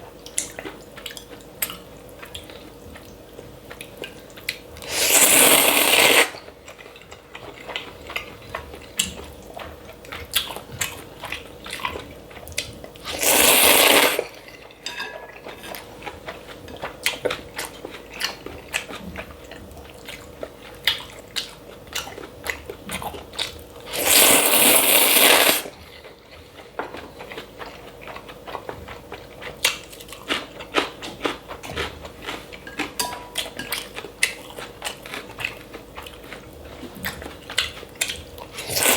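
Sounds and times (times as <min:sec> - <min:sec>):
chewing: 0:00.2 - 0:38.9
loud noodle slurps: 0:04.8 - 0:06.4, 0:13.0 - 0:14.4, 0:23.9 - 0:25.8, 0:38.6 - 0:38.9.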